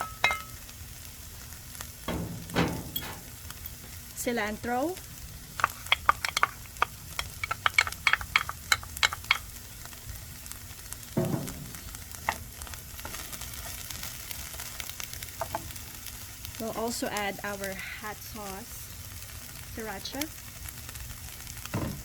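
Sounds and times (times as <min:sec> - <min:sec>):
vegetables sizzling in a frying pan: 0:00.0 - 0:22.0
low thump: 0:02.1 - 0:03.3, 0:11.2 - 0:11.8.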